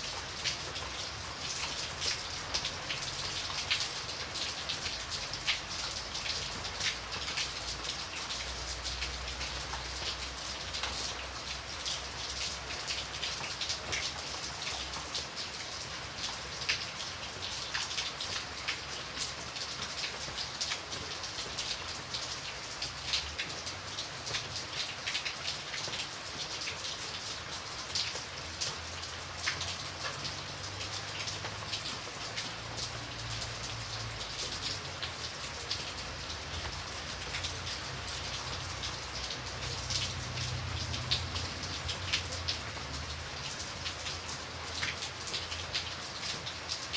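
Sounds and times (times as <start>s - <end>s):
steady rain hiss: 0.0s - 46.9s
raindrops clicking on hard surface: 27.4s - 46.9s.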